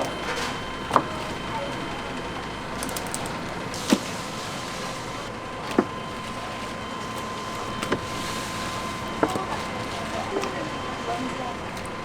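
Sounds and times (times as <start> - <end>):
kitchen hiss and hum: 0.0 - 12.0.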